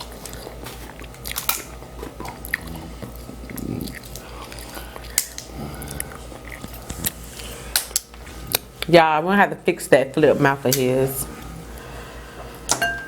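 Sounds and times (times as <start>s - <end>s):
chewing and biting: 0.0s - 8.9s.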